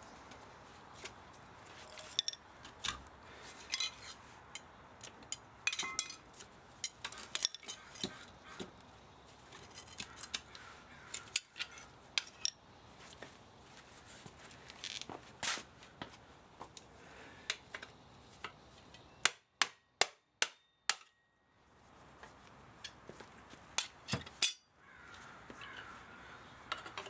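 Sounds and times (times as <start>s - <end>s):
metallic clicks and clinks: 1.8s - 2.4s, 3.7s - 6.2s.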